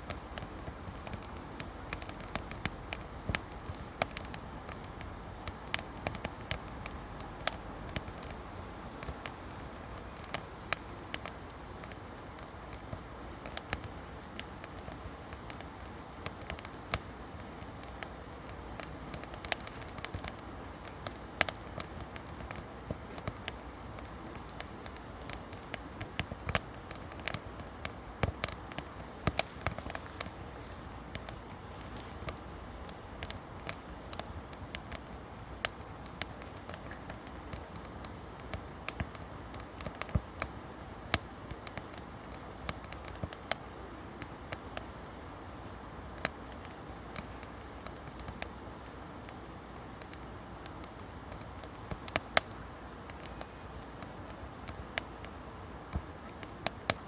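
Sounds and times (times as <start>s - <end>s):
campfire crackling and popping: 0.0s - 57.0s
fire hiss: 0.1s - 39.4s.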